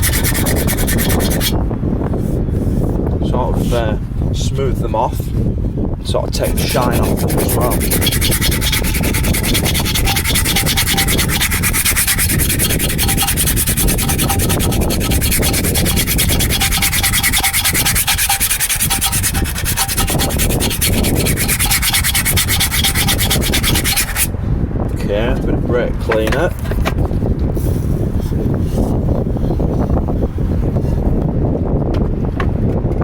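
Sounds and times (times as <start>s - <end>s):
sandpaper sanding brake shoes: 0.0s - 1.6s, 6.3s - 24.3s.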